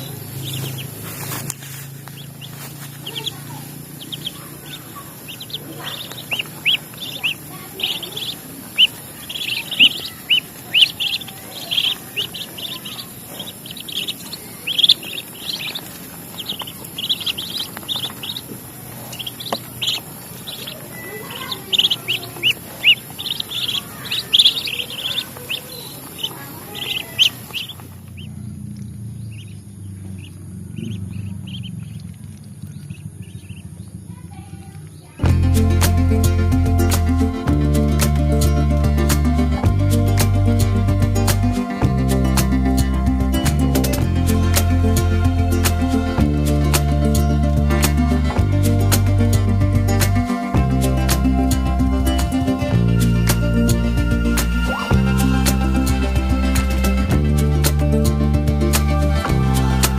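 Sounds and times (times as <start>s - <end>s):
small bird chirping: 0.0s - 35.2s.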